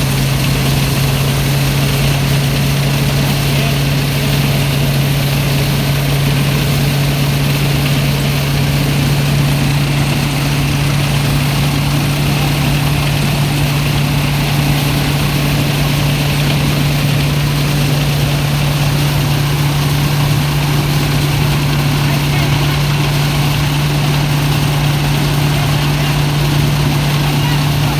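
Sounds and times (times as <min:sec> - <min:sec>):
threshing machine engine running: 0:00.0 - 0:27.9.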